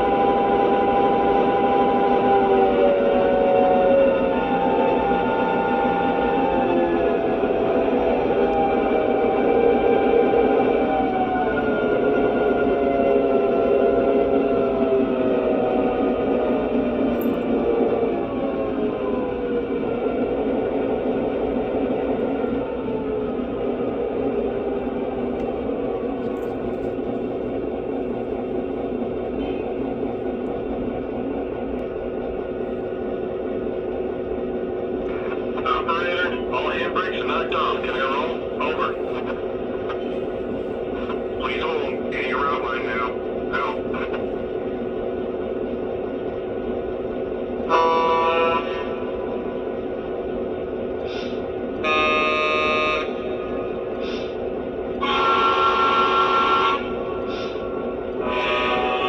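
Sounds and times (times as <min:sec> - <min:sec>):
diesel locomotive idling: 0:00.0 - 0:59.0
diesel engine idling: 0:21.6 - 0:47.6
locomotive horn blasts: 0:47.7 - 0:49.1, 0:51.8 - 0:53.6, 0:55.0 - 0:57.6, 0:58.2 - 0:59.0.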